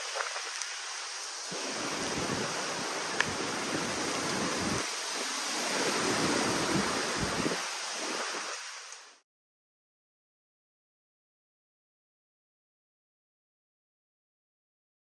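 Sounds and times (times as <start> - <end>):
hurricane wind gusting: 0.0 - 9.2
wind buffeting microphone: 1.4 - 8.7.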